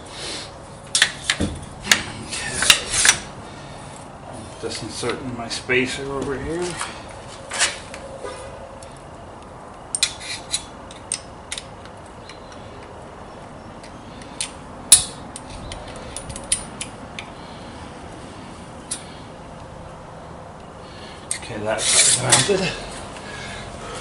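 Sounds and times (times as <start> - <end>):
metallic clicks of hand tools: 9.9 - 12.6.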